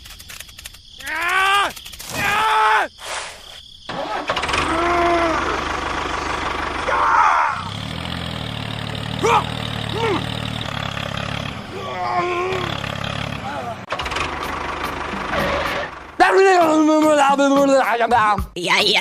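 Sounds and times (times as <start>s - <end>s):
small engine starting and running: 3.9s - 16.2s
voice-like calls: 9.2s - 10.4s.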